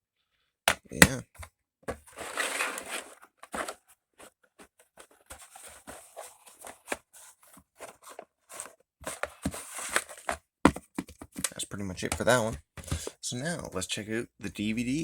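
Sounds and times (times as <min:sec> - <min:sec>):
rustling: 0:02.0 - 0:10.4.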